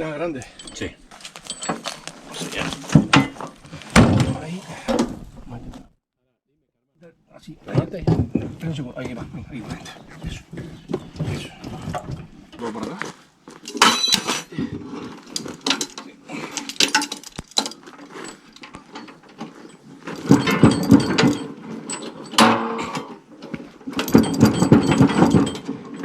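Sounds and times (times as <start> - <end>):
metal parts clicking and knocking: 0.4 - 5.5, 13.5 - 26.0
metal clatter: 0.4 - 5.8, 7.6 - 26.0.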